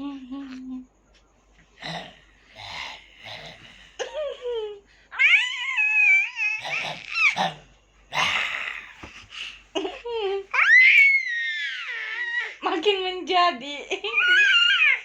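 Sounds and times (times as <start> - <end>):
baby crying: 5.1 - 7.6, 10.5 - 12.6, 14.1 - 15.0
baby squealing: 5.2 - 7.4, 10.6 - 12.6
baby vocalizing: 5.2 - 9.6.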